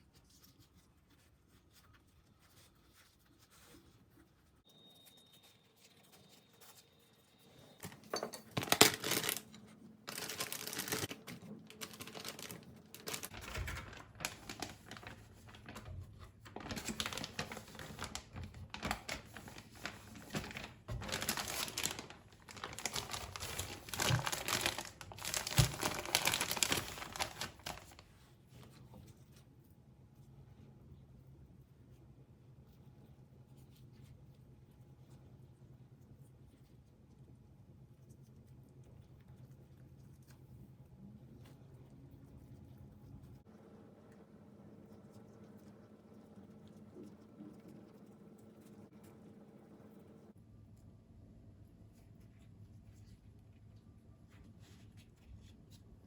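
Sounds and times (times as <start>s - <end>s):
plastic crinkling and rustling: 0.0s - 29.5s.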